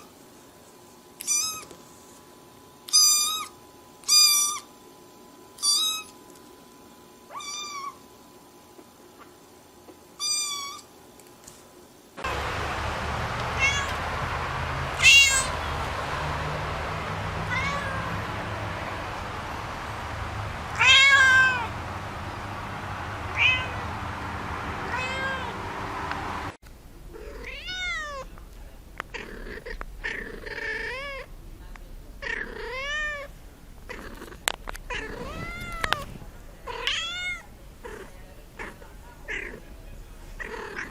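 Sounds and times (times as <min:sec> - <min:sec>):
kittens meowing: 0:13.6 - 0:14.1, 0:17.4 - 0:18.1.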